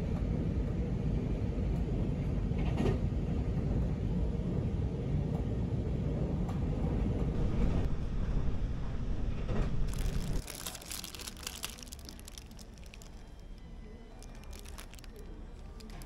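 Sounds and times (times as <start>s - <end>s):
bus ride rumble: 0.0s - 16.0s
crisp crackling and rustling: 9.5s - 16.0s.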